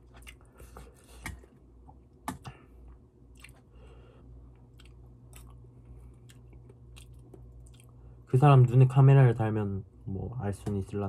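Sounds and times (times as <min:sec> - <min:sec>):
person chewing: 0:00.0 - 0:01.5, 0:02.9 - 0:08.1.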